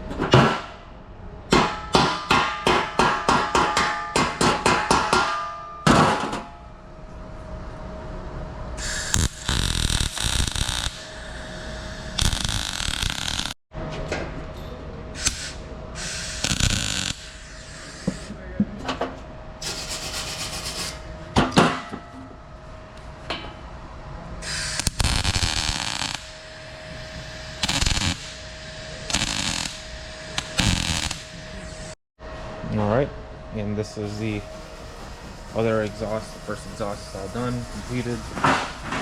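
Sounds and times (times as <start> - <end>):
steady hum: 0.0 - 39.0
sharp metallic knocks: 1.5 - 6.5.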